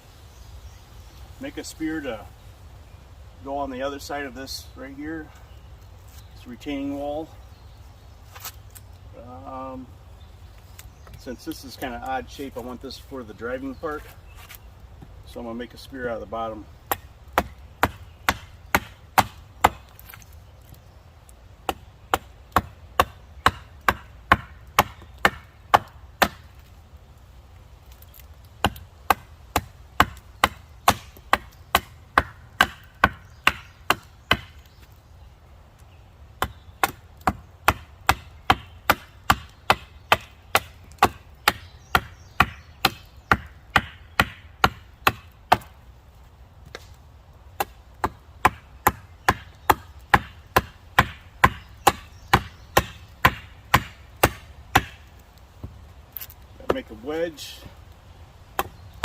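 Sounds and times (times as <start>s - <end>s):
axe chopping wood: 16.9s - 20.2s, 21.6s - 26.7s, 28.6s - 34.6s, 36.4s - 45.8s, 47.6s - 56.9s, 58.5s - 58.8s.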